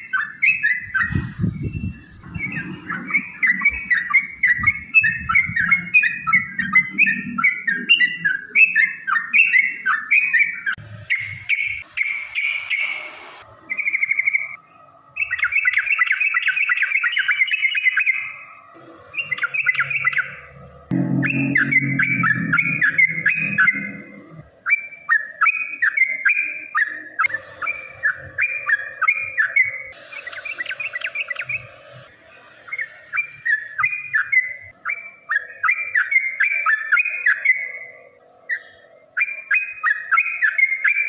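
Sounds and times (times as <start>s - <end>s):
bulbuls singing chattering notes: 0.0s - 41.0s
low thuds: 20.9s - 24.4s.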